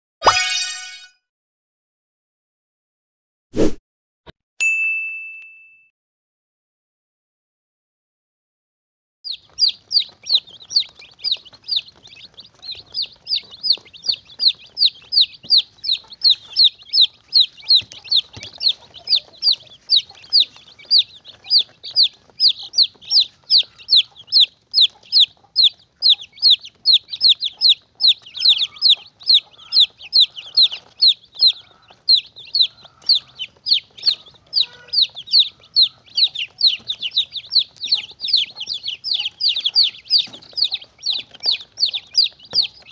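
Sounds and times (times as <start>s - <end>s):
chick peeping: 9.3s - 42.9s.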